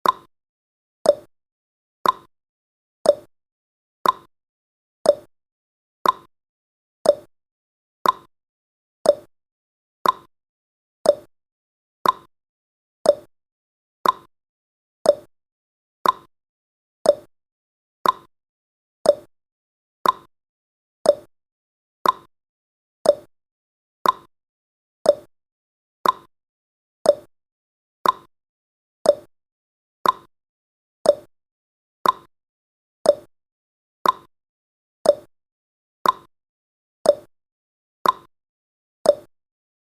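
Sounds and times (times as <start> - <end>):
clock ticking: 2.0 - 2.3, 4.0 - 4.3, 6.0 - 6.3, 8.0 - 8.3, 10.0 - 10.3, 12.0 - 12.3, 14.0 - 14.3, 16.0 - 16.3, 18.0 - 18.3, 20.0 - 20.3, 22.0 - 22.3, 23.1 - 23.3, 24.0 - 24.3, 26.0 - 26.3, 28.0 - 28.3, 29.1 - 29.3, 30.0 - 30.3, 31.1 - 31.3, 32.0 - 32.3, 33.1 - 33.3, 34.0 - 34.3, 35.1 - 35.3, 36.0 - 36.3, 38.0 - 38.3, 39.1 - 39.3.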